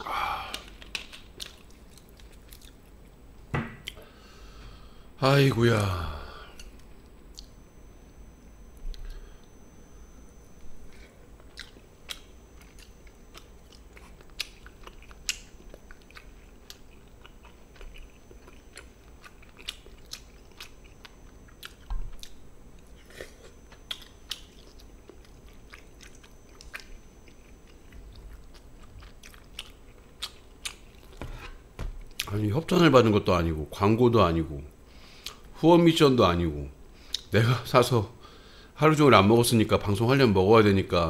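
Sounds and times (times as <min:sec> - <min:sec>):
person chewing with crunches: 0:00.0 - 0:04.1, 0:10.3 - 0:32.4, 0:37.0 - 0:37.3.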